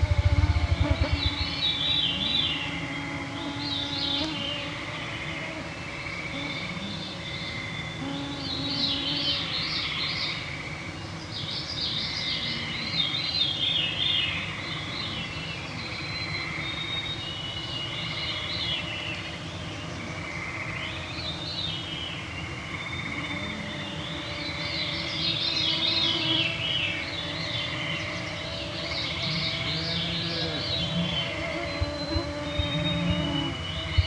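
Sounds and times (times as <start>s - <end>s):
mosquitoes whining: 0.0s - 10.0s, 22.9s - 34.0s
songbirds singing: 0.0s - 34.0s
frogs trilling: 22.5s - 34.0s.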